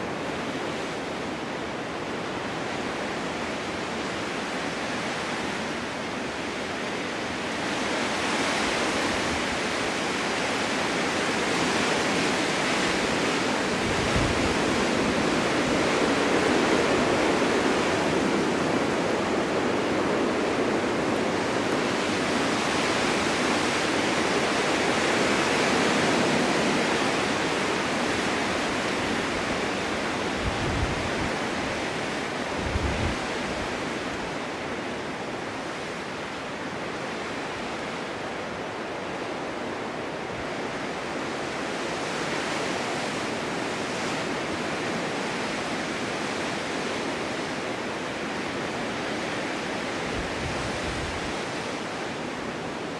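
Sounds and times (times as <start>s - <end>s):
snowstorm wind gusting: 0.0s - 52.9s
wind buffeting microphone: 7.7s - 41.5s, 48.2s - 52.9s.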